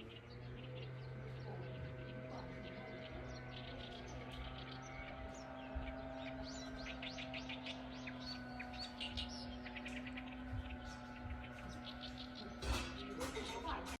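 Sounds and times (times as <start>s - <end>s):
songbirds chirping: 0.0s - 14.0s
steady low hum: 0.0s - 14.0s.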